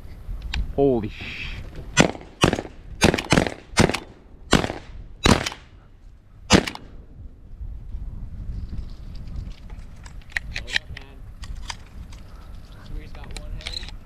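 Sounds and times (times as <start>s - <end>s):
shotgun shots with echo: 2.0s - 5.7s, 6.5s - 6.9s.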